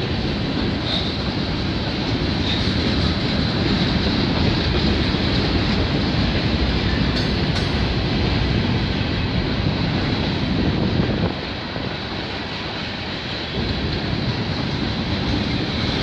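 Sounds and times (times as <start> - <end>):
train wheels rolling on rail: 0.0 - 16.0.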